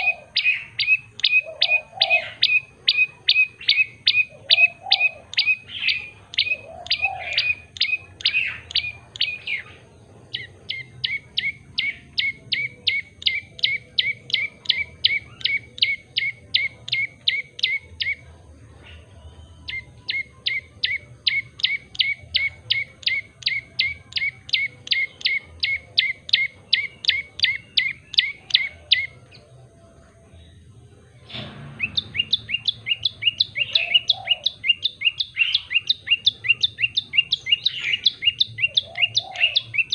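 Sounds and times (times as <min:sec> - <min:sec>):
bird singing sharp chip notes: 0:00.0 - 0:29.5, 0:30.3 - 0:39.9
noisy thump: 0:31.2 - 0:33.9.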